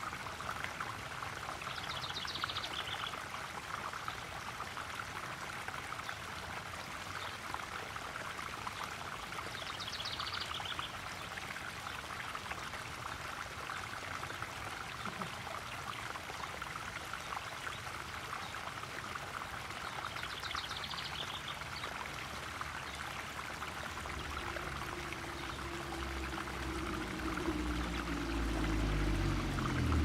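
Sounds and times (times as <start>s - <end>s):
waterfall splashing and trickling: 0.0s - 30.0s
low steady hum: 22.8s - 30.0s.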